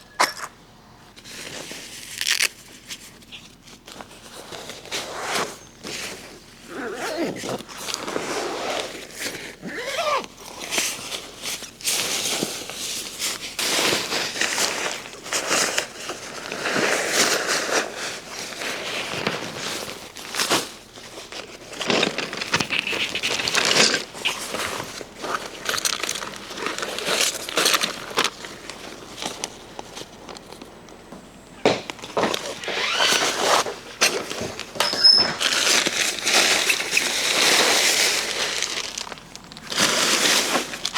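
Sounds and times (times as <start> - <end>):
rustling and crinkling handling: 1.1 - 40.9
short squeaky glides: 32.5 - 33.6, 34.8 - 35.6.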